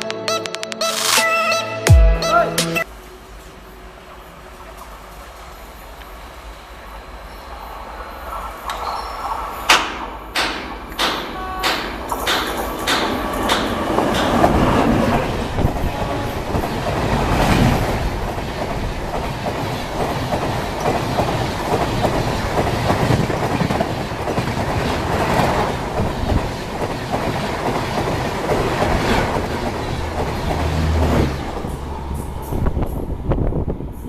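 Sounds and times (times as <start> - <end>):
train wheels clattering over joints: 9.8 - 33.0.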